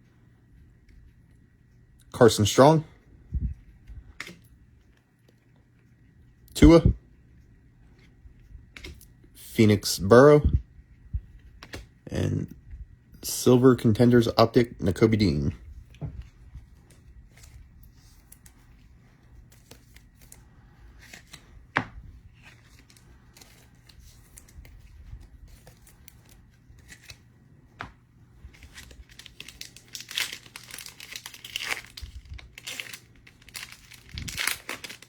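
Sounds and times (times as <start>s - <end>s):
card wrappers crinkling and tearing: 22.3s - 27.3s, 28.4s - 35.0s.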